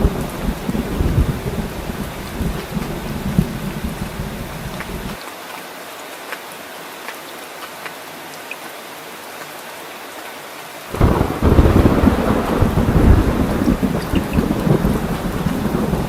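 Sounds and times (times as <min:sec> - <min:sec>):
low rumble of thunder: 0:00.0 - 0:05.2, 0:10.9 - 0:16.0
rain hissing: 0:00.0 - 0:05.2, 0:10.8 - 0:16.0
water drips: 0:00.0 - 0:09.6, 0:12.6 - 0:15.8.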